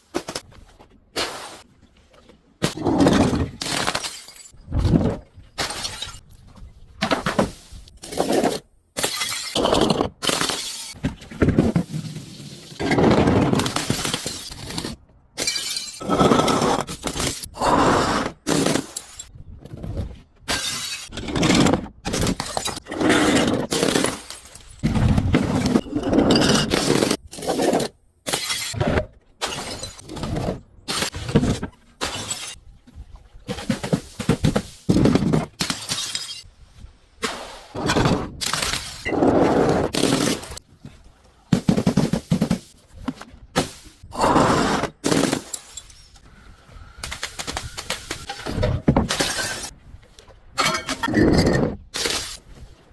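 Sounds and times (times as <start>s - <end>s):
things being crushed and smashed: 2.6s - 6.3s, 20.0s - 36.5s, 37.2s - 40.6s, 43.6s - 46.2s, 47.0s - 49.8s
glass breaking: 3.6s - 4.6s, 9.0s - 9.6s, 15.4s - 16.1s, 20.5s - 21.2s, 28.3s - 28.8s, 29.4s - 30.1s, 35.6s - 36.4s.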